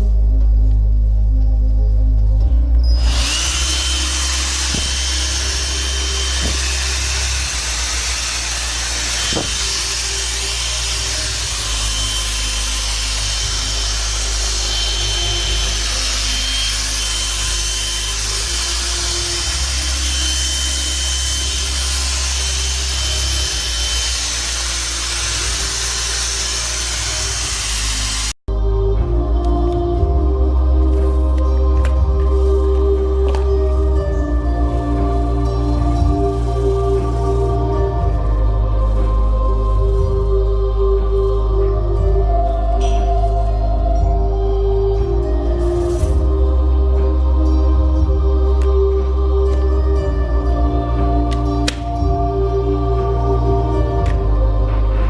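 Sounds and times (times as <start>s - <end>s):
vacuum cleaner running: 3.0s - 28.4s.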